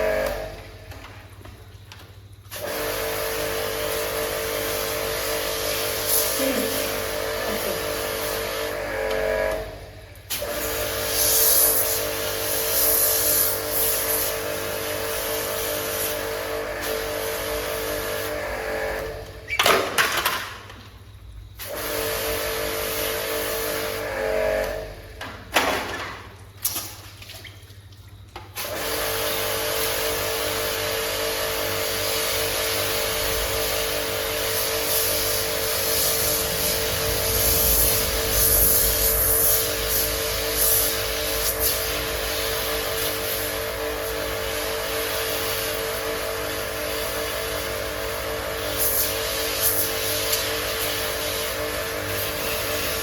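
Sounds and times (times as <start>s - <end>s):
machine motor humming: 33.2s - 43.0s.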